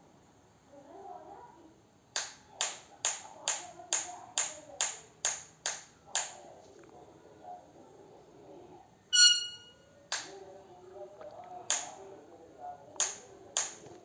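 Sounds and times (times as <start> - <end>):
hand claps: 2.2 - 6.4, 10.1 - 10.3, 11.7 - 11.9, 13.0 - 13.9.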